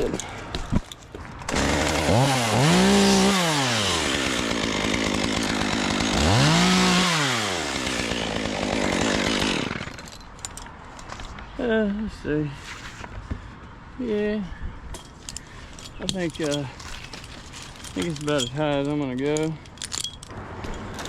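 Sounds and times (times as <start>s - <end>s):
chainsaw revving: 1.5s - 10.1s.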